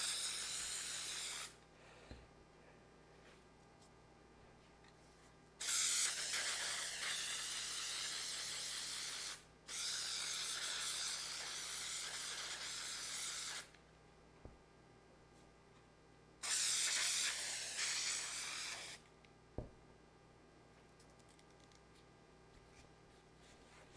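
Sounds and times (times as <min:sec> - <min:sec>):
aerosol can spraying: 0:00.0 - 0:01.6, 0:05.6 - 0:13.7, 0:16.4 - 0:19.0.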